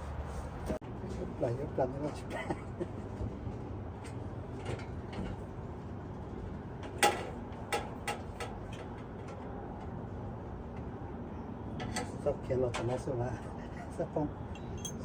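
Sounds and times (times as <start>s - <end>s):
low background hum: 0.6s - 15.0s.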